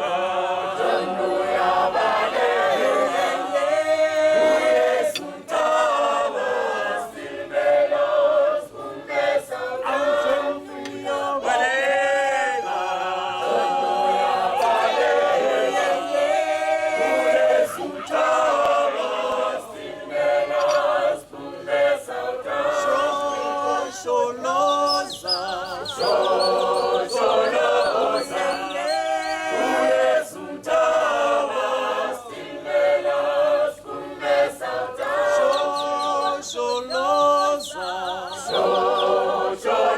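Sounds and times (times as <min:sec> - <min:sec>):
group singing a cappella: 0:00.0 - 0:39.9.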